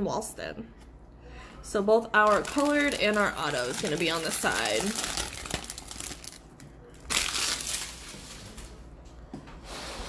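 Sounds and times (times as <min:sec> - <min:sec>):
foil wrapper crinkling: 0:02.2 - 0:08.8.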